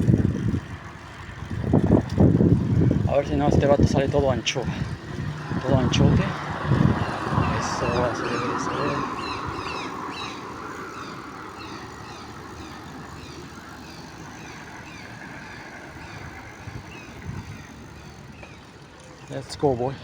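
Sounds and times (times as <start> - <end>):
vehicle and road rumble: 0.0 - 20.0
small birds chirping: 6.9 - 20.0.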